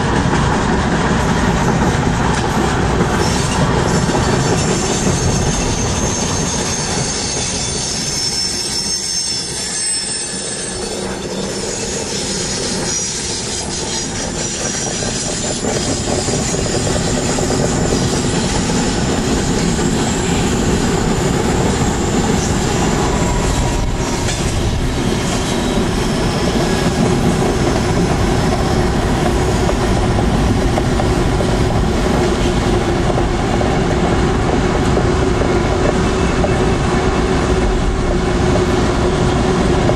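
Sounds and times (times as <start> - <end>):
train wheels on rails: 0.0 - 39.9
high-pitched wheel squeal: 4.4 - 27.0.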